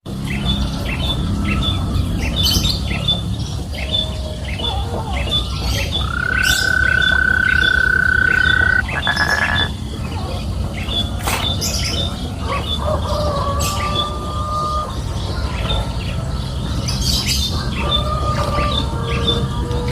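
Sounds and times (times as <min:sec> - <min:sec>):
bird chirping: 0:02.2 - 0:09.8.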